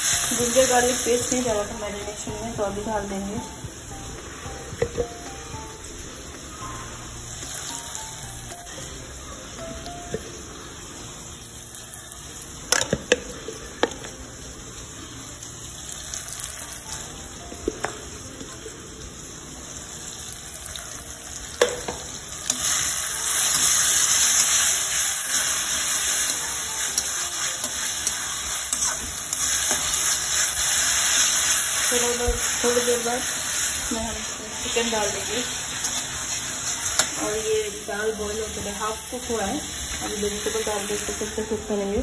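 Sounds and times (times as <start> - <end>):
vegetables sizzling in oil: 0.0 - 42.0
spatula stirring: 23.2 - 31.9.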